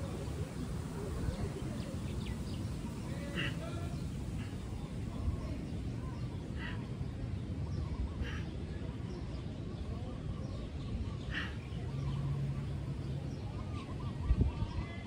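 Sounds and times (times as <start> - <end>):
short bird calls: 2.3 - 4.8.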